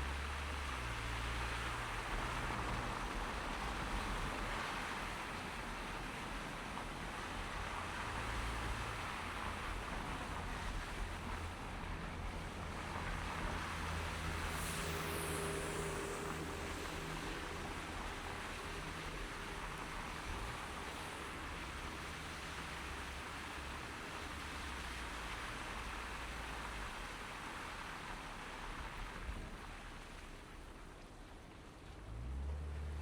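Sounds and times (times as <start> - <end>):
road and engine rumble: 0.0 - 33.0
tyres hissing on slush: 13.3 - 26.8.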